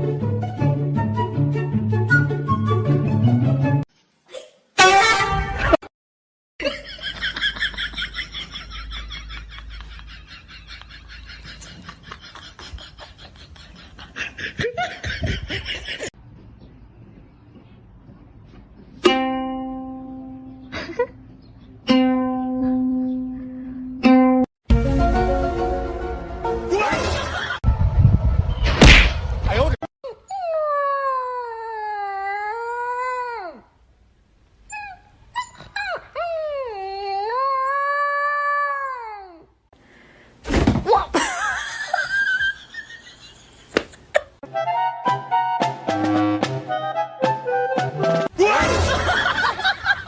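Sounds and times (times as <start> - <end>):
plucked note ringing: 19.0 - 20.7.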